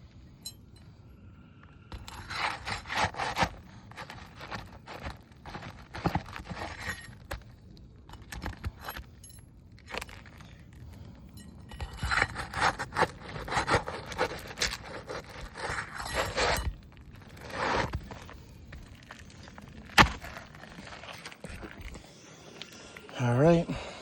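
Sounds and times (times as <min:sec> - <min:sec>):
roof shingle scraping: 0:01.9 - 0:07.5, 0:11.7 - 0:22.0.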